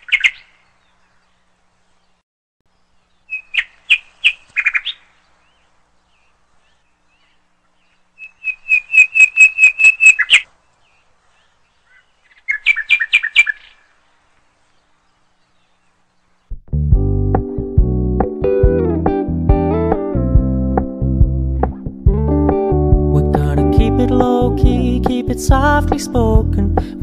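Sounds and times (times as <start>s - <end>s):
bird singing quick notes: 8.2s - 10.5s.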